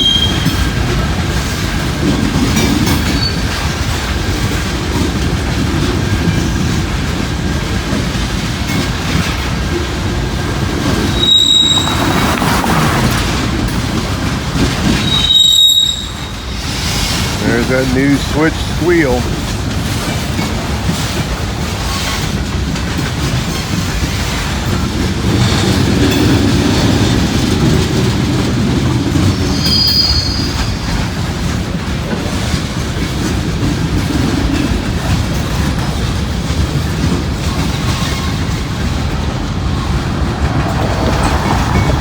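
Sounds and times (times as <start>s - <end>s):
train wheels squealing: 0.0s - 0.9s, 2.2s - 3.8s, 10.9s - 13.3s, 14.8s - 17.6s, 29.1s - 31.3s
freight train rumbling past: 0.0s - 42.0s.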